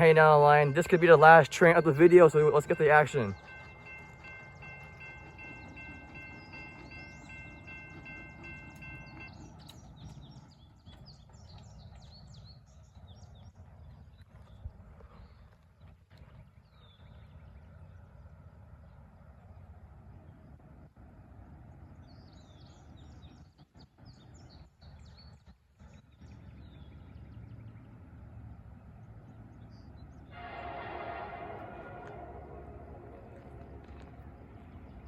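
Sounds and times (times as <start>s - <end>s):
birds chirping: 0.0s - 15.5s, 21.7s - 35.0s
train low rumble: 0.0s - 35.0s
locomotive air horn: 30.3s - 34.8s.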